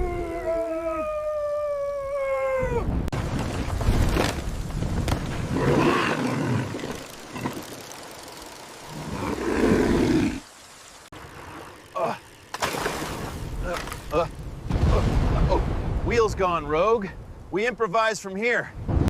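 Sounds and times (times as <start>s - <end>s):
falling howl: 0.0s - 3.1s
creature roaring: 5.5s - 7.6s, 8.9s - 10.4s
low storm rumble: 13.4s - 17.6s.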